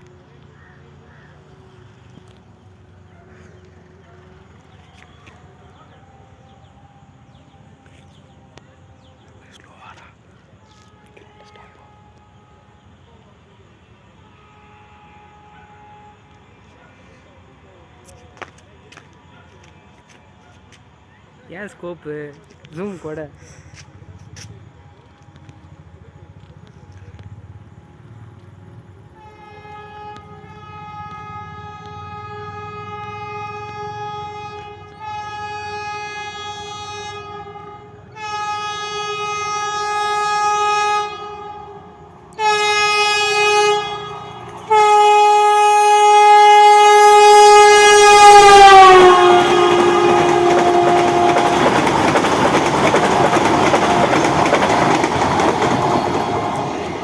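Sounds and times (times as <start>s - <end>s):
train horn blasts: 10.6s - 17.4s, 29.0s - 57.0s
train cars rumbling and clattering: 22.4s - 57.0s.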